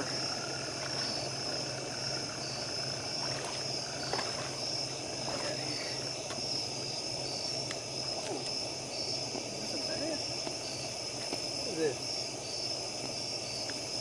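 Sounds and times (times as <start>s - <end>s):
crickets and insects trilling: 0.0s - 14.0s.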